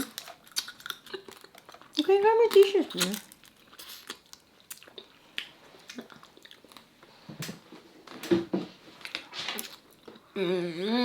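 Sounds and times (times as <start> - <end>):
lip smacks: 0.0 - 6.9
wet chewing: 0.0 - 6.9
person humming mmm: 10.4 - 11.0.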